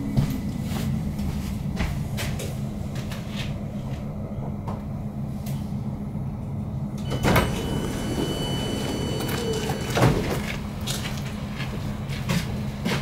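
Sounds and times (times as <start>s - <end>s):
train interior hum: 0.0s - 13.0s
door release tone: 7.0s - 10.4s.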